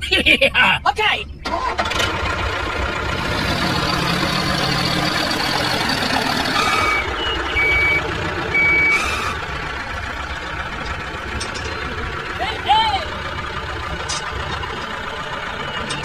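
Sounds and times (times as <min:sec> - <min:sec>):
engine rumble: 0:00.0 - 0:16.0
vehicle reversing alarm beeps: 0:04.7 - 0:09.4, 0:15.3 - 0:16.0.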